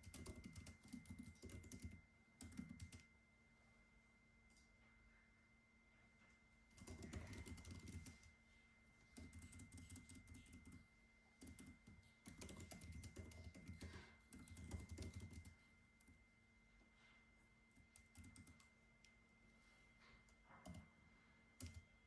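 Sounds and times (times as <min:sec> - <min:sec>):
computer keyboard typing: 0:00.0 - 0:03.1, 0:06.7 - 0:08.4, 0:09.2 - 0:10.8, 0:11.4 - 0:16.2, 0:17.8 - 0:18.8, 0:20.3 - 0:20.9, 0:21.6 - 0:22.0.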